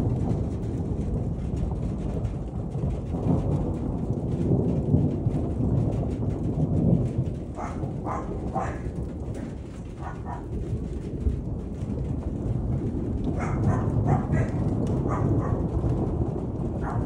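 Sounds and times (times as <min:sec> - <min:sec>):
steady rain: 0:00.0 - 0:17.0
thunder rumbling: 0:00.0 - 0:17.0
dog barking: 0:07.5 - 0:09.0, 0:10.0 - 0:10.5, 0:13.3 - 0:15.7.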